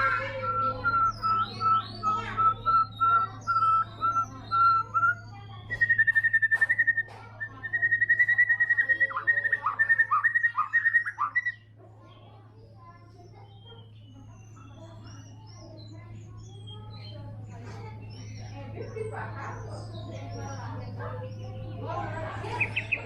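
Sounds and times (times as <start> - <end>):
bird whistling and trilling: 0.0 - 11.7, 22.4 - 23.0.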